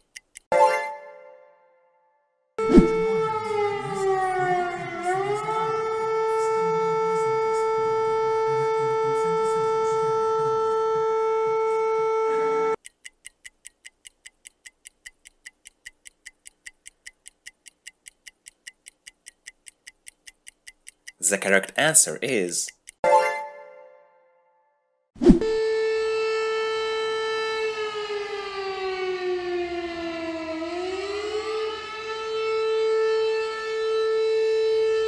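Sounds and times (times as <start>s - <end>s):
clock ticking fast: 0.0s - 0.5s, 12.8s - 23.0s
air raid siren: 2.6s - 12.8s, 25.3s - 35.0s.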